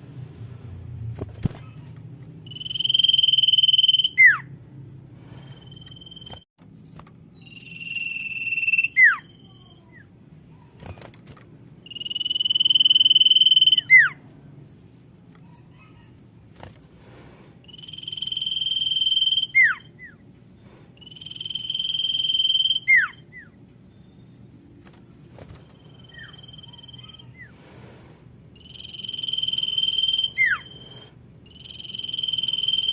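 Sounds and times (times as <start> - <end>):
bird whistling call: 2.5 - 4.5, 7.4 - 9.6, 11.9 - 14.2, 17.7 - 20.2, 21.0 - 24.2, 25.7 - 27.5, 28.6 - 32.9.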